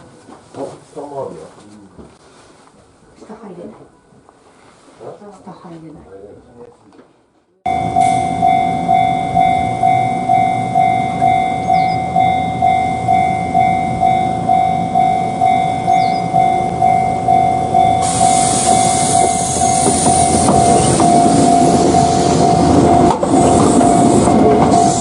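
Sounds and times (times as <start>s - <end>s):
level crossing warning bell: 7.7s - 25.0s
passing train running noise: 7.7s - 25.0s.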